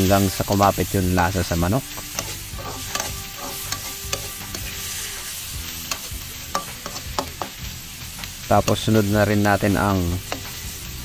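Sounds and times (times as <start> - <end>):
chicken sizzling in oil: 0.0 - 11.0
metal ladle scraping pan: 1.8 - 7.6.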